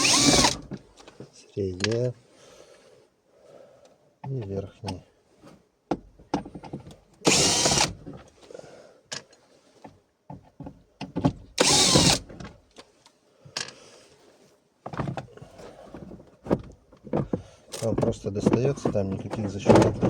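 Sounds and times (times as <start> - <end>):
cordless screwdriver whirring: 0.0 - 0.7, 7.3 - 8.0, 11.6 - 12.2
handling clicks and knocks: 0.4 - 2.1, 16.0 - 20.0.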